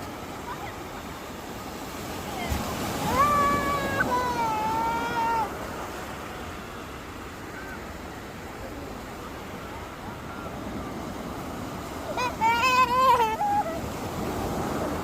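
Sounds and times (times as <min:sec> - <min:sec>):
surf washing onto beach: 0:00.0 - 0:15.0
child squealing: 0:03.1 - 0:05.5, 0:12.2 - 0:13.9.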